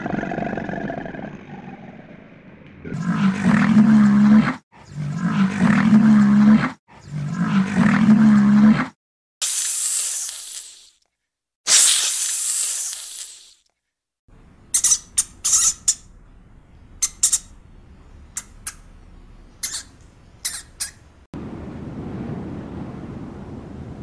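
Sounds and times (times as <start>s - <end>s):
cobra hissing: 11.7s - 13.6s, 17.0s - 17.6s, 19.6s - 21.1s
rat feeding squeaks: 14.7s - 16.1s, 17.0s - 17.6s, 19.6s - 21.1s.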